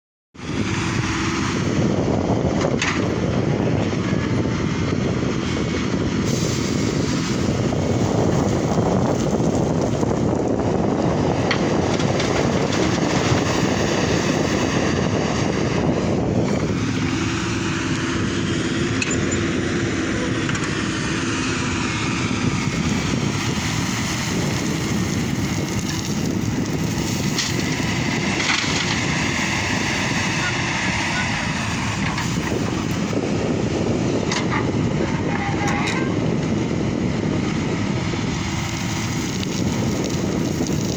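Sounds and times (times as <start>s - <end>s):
excavator engine and hydraulics: 0.4s - 40.9s
heavy rushing noise: 0.4s - 40.9s.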